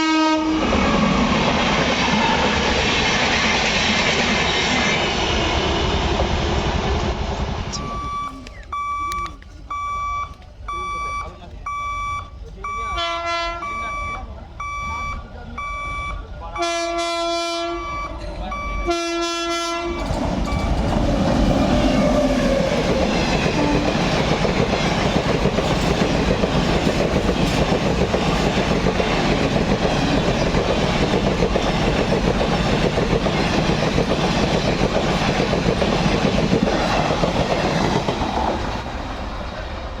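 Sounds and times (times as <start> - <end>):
train horn blasts: 0.0 - 1.1, 13.0 - 13.8, 16.6 - 18.0, 18.8 - 20.1, 23.4 - 24.1
train passing with rushing noise: 0.0 - 8.5, 11.5 - 40.0
wheels clattering over rails: 20.0 - 39.5.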